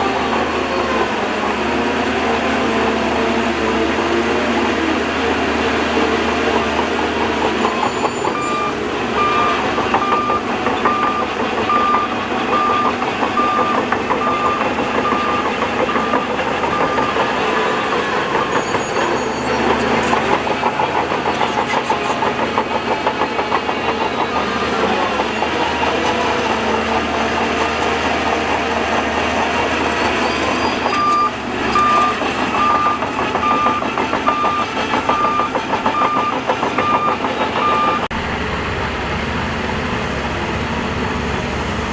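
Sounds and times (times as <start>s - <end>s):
heavy machinery engine running: 0.0s - 41.9s
reversing alarm beeping: 6.5s - 21.6s, 29.7s - 38.1s.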